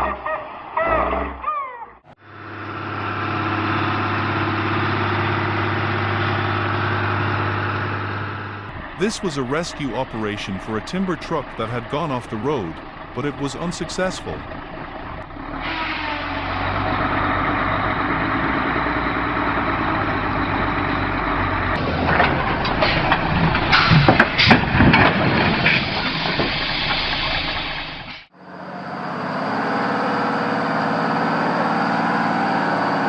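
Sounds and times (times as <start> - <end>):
heavy truck engine running: 2.1 - 33.0
sharp knocks and clanks: 21.8 - 27.0.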